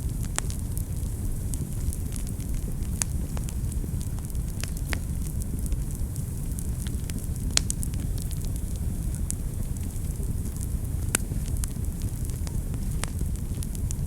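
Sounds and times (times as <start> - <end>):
fire flame rumble: 0.0 - 14.0
wood fire crackles and pops: 0.0 - 14.0.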